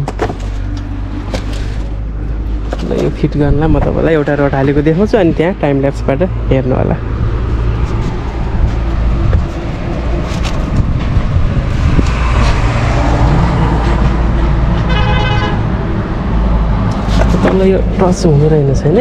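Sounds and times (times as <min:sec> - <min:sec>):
vehicle engine humming: 0:00.0 - 0:19.0
short horn toot: 0:14.9 - 0:15.6.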